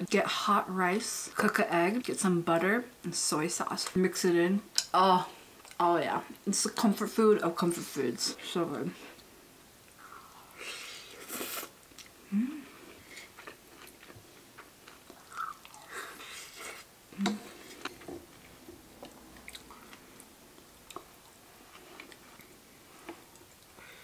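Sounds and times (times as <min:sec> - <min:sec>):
biting and chewing food: 0:13.0 - 0:23.8.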